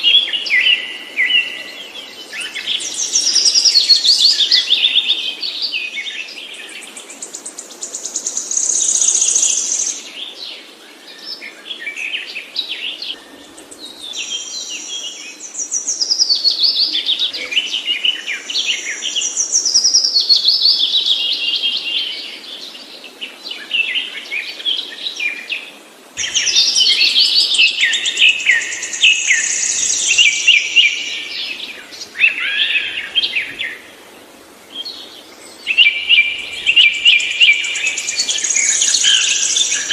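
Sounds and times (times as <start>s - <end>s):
songbird trilling and whistling: 35.7s - 39.9s.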